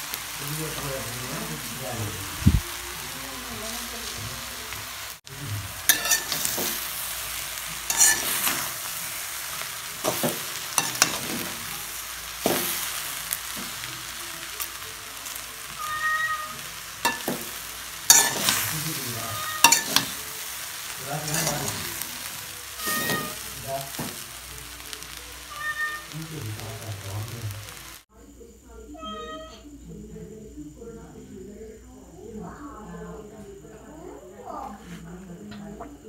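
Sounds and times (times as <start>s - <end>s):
food sizzling in a metal pan: 0.0s - 28.1s
spatula scraping a pan: 5.9s - 7.0s, 7.8s - 9.0s, 10.0s - 11.7s, 15.9s - 20.2s, 21.2s - 22.0s, 22.8s - 24.2s.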